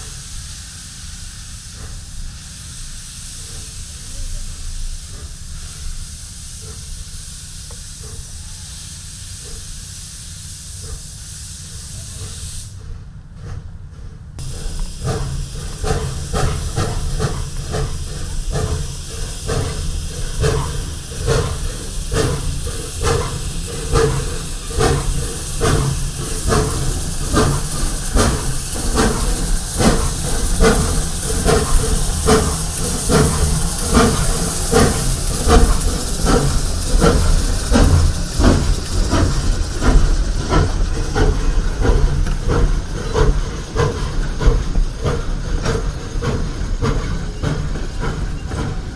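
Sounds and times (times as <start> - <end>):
steam hissing: 0.0 - 13.7, 14.4 - 48.9
steam locomotive exhaust chuffs: 0.0 - 48.9.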